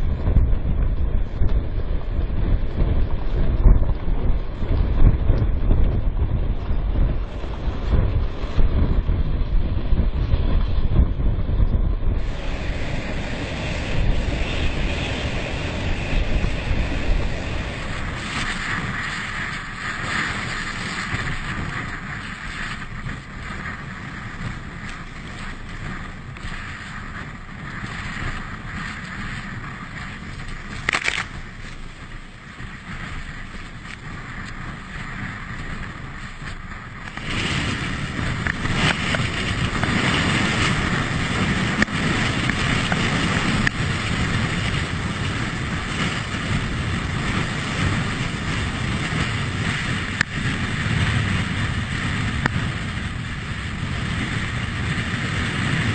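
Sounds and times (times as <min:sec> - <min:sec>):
wind buffeting microphone: 0:00.0 - 0:55.9
water rushing past boat: 0:12.2 - 0:55.9.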